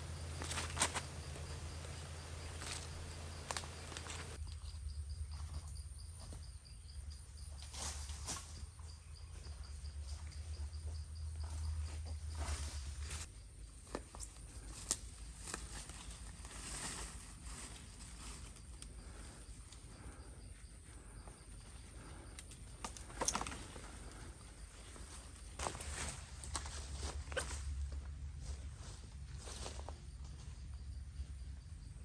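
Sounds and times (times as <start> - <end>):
clicks and rustles of movement: 0.0 - 4.4
insects trilling: 0.0 - 4.4
low steady rumble: 0.0 - 4.4.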